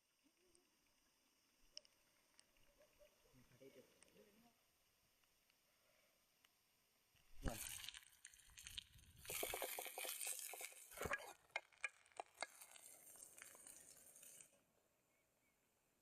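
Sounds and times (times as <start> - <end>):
small clicks and knocks: 9.7 - 12.9.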